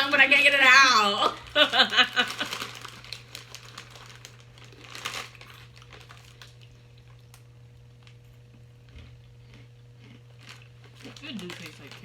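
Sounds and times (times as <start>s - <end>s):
crinkling packaging: 1.5s - 8.5s, 10.1s - 12.0s
crunchy snack being chewed: 2.2s - 12.0s.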